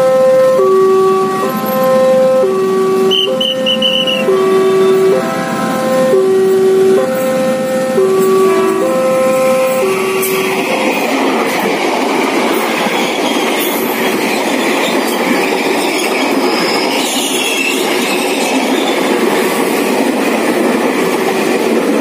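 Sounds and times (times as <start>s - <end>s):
level crossing bell: 0.0s - 11.6s
train wheels rumbling on rails: 0.6s - 22.0s
wheels squealing: 12.6s - 19.1s.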